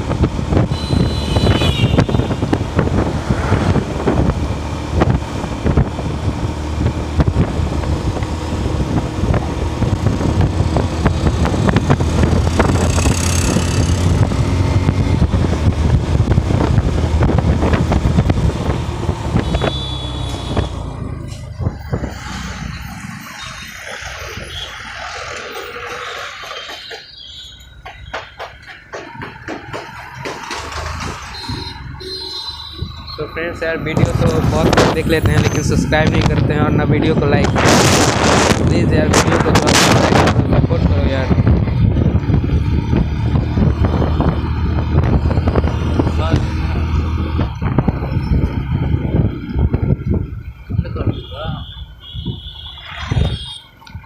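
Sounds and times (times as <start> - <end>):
motorcycle engine running: 0.0 - 21.1
wind noise on microphone: 0.0 - 25.0, 32.7 - 54.0.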